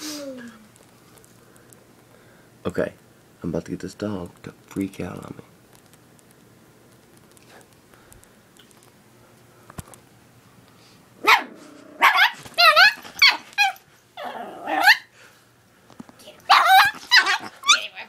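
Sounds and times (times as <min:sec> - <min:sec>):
small dog yapping: 0:11.2 - 0:15.1, 0:16.5 - 0:18.0.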